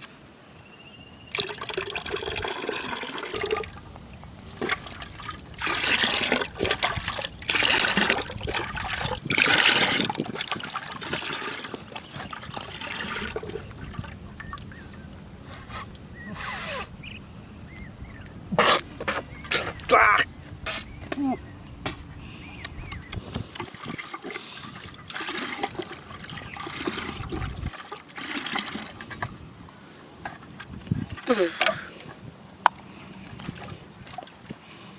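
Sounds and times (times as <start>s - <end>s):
water splashing and trickling: 1.2s - 16.2s, 22.2s - 34.9s.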